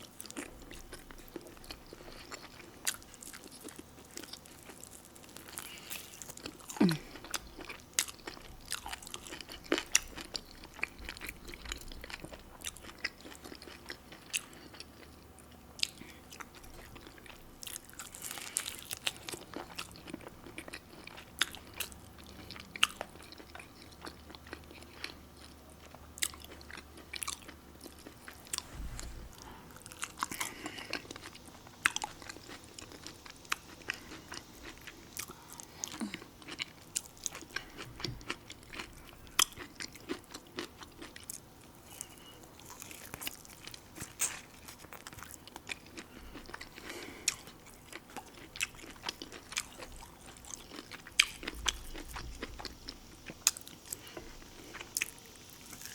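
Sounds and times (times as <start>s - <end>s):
person chewing: 0.0s - 55.9s
crunchy bites: 26.2s - 55.9s.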